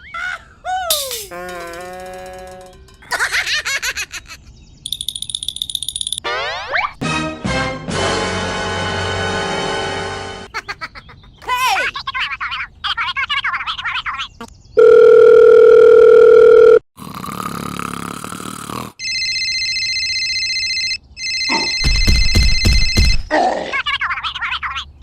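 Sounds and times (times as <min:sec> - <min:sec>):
loud steady dial tone: 0:14.8 - 0:16.8, 0:19.0 - 0:21.8.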